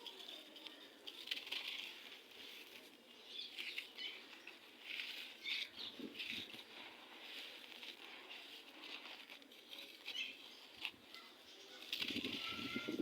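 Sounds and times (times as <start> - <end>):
sand crumbling and crunching: 0.0 - 13.0.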